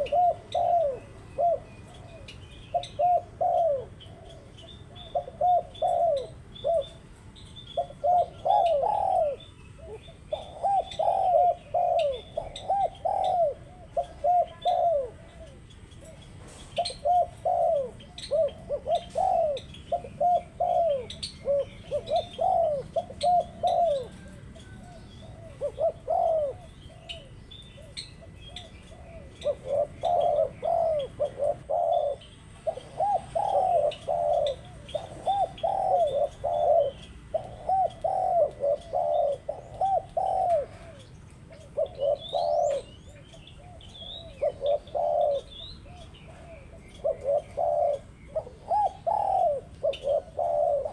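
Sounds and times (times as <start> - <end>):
doves cooing: 0.0 - 50.9
small birds chirping faintly: 0.0 - 50.9.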